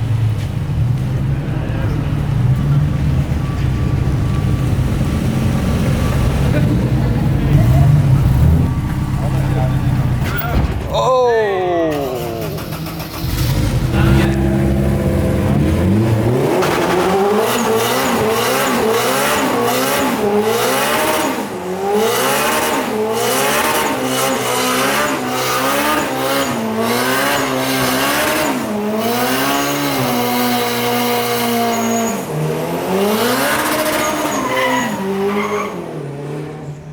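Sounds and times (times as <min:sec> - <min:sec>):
car engine revving: 0:00.0 - 0:10.4, 0:11.9 - 0:36.9
tyre squeal: 0:31.3 - 0:32.4, 0:33.5 - 0:36.0.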